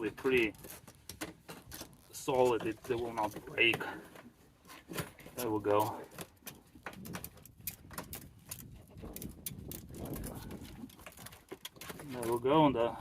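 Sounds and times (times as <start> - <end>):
plastic clicks and rattles: 4.8 - 12.5.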